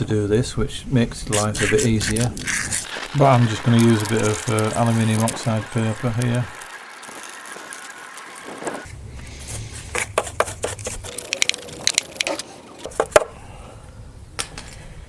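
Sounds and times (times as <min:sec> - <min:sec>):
sandpaper scratching metal: 0:01.3 - 0:11.5.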